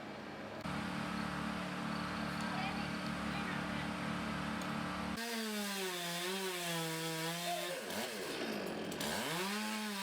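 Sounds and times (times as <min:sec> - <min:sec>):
chainsaw cutting wood: 0:05.2 - 0:10.0.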